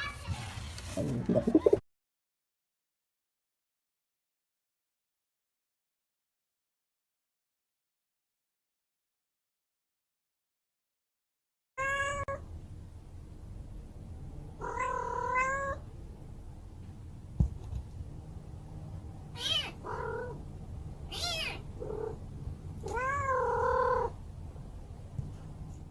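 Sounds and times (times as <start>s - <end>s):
cat meowing: 11.8s - 12.4s, 14.6s - 15.8s, 19.3s - 20.4s, 21.1s - 22.2s, 22.8s - 24.2s.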